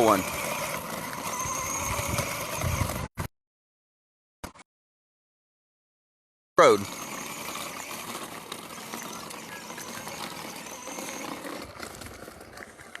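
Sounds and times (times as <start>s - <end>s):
small motor running: 0.0s - 3.2s, 6.6s - 13.0s.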